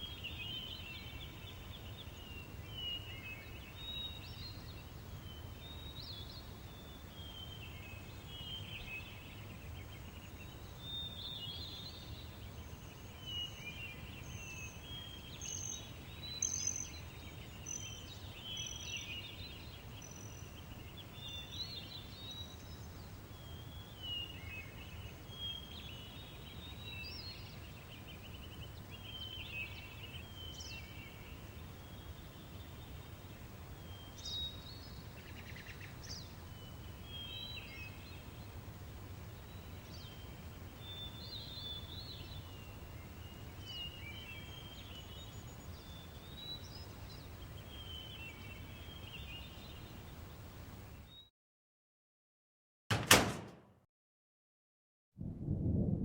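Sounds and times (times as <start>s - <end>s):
small birds chirping and trilling: 0.0s - 51.3s.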